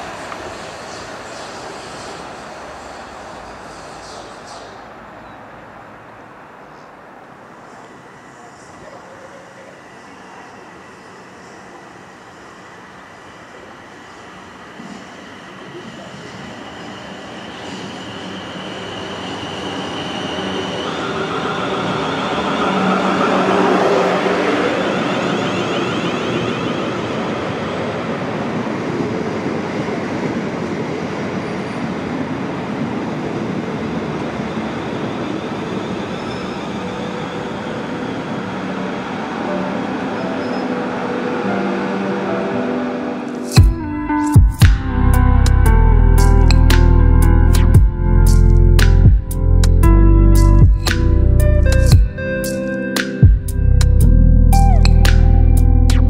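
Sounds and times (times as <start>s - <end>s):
electric train passing: 0.0s - 56.0s
high whine: 43.2s - 56.0s.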